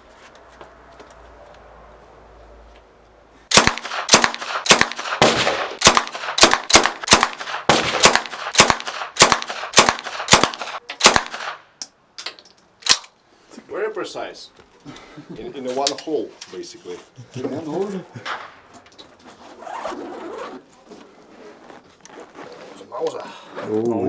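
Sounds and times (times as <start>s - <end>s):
submachine gun shots: 3.5s - 11.6s.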